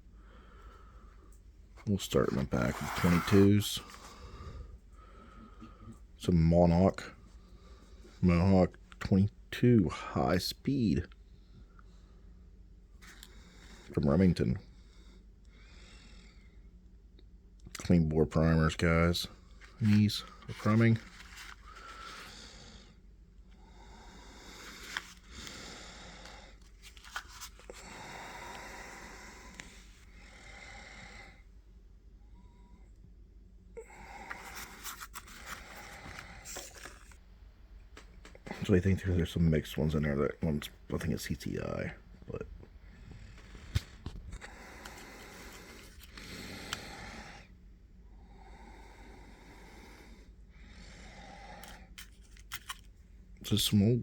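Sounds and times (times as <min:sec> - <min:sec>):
breathing close to microphone: 0:02.7 - 0:06.0.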